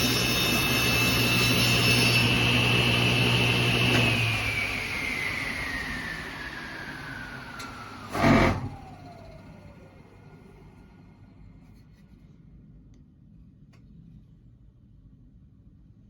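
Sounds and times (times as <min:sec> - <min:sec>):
power tool motor spinning down: 0:00.0 - 0:10.3.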